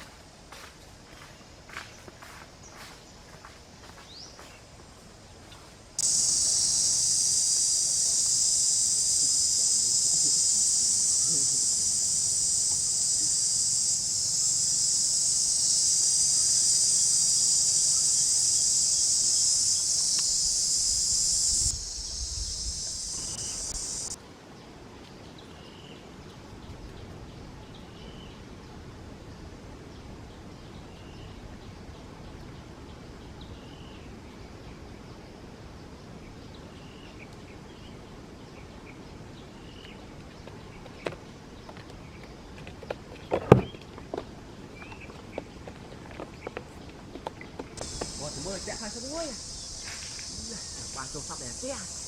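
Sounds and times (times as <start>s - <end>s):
outdoor ambience: 0.0s - 52.0s
high-pitched insect drone: 6.0s - 24.2s, 47.8s - 52.0s.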